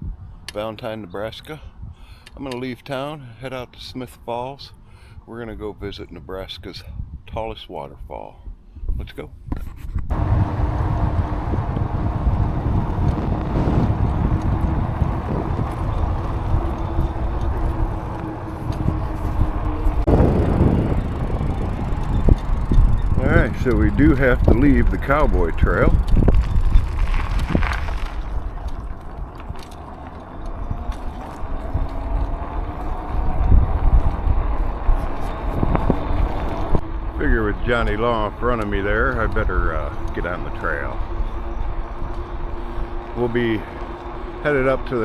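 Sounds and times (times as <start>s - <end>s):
wind buffeting microphone: 5.2s - 7.6s, 8.4s - 45.0s
tyres rolling on ground: 10.1s - 40.9s
small clicks and rattles: 14.0s - 34.2s.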